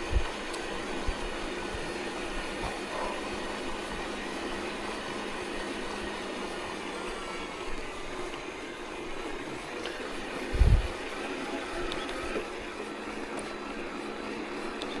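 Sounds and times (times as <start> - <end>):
wind noise: 10.5 - 11.0.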